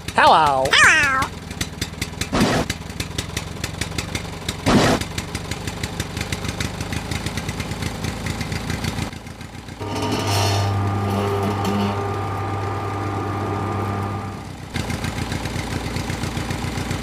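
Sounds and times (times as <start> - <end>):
small motor running: 9.8 - 14.5.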